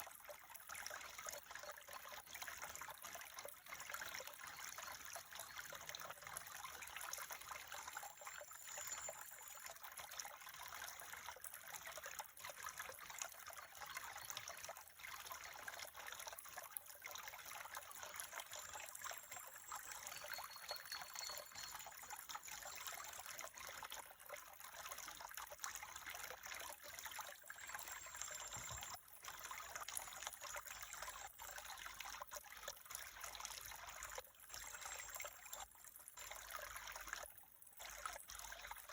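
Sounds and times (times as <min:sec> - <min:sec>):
stream trickling: 0:00.0 - 0:38.9.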